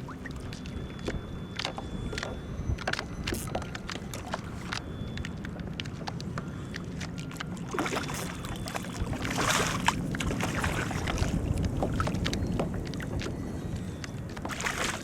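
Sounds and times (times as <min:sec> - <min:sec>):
water splashing and lapping: 0:00.0 - 0:15.0
wind buffeting microphone: 0:07.8 - 0:15.0.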